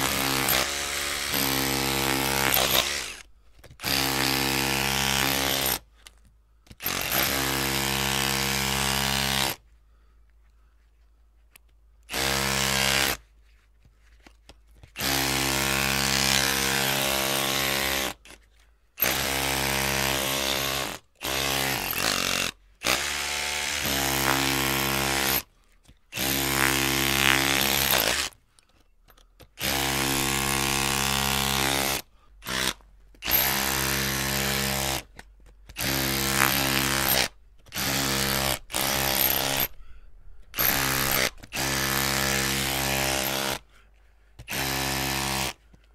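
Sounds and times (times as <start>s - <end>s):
electric drill motor whining: 0.0s - 3.2s, 29.6s - 35.0s, 35.8s - 39.8s, 40.6s - 43.6s.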